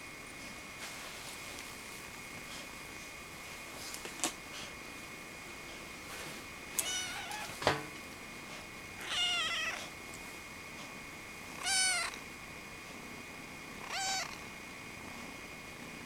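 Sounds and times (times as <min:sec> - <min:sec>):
cat meowing: 0:06.8 - 0:07.6, 0:09.0 - 0:09.8, 0:11.6 - 0:12.2, 0:13.8 - 0:14.4.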